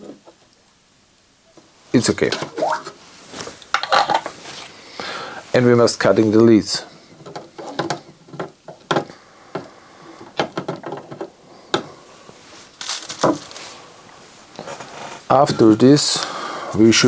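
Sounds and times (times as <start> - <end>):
short rustle: 1.7 - 6.5, 12.2 - 15.4.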